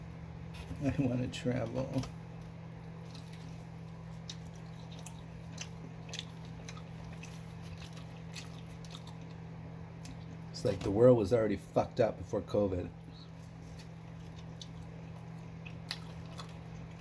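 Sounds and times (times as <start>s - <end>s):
steady low hum: 0.0s - 17.0s
chewing food: 1.5s - 10.5s, 12.9s - 17.0s.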